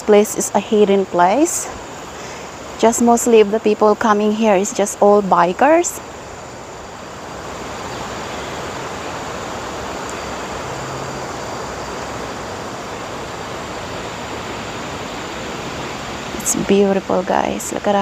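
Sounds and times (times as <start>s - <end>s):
wind blowing: 0.0s - 18.0s.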